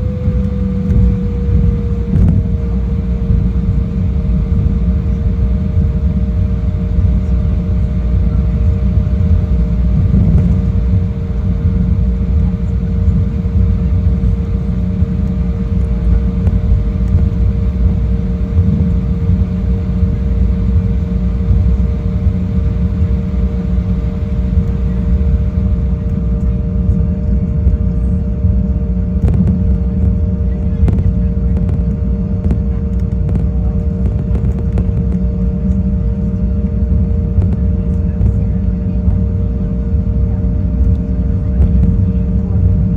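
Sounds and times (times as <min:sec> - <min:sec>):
two-note hum: 0:00.0 - 0:26.6
jet engine cabin rumble: 0:00.0 - 0:42.9.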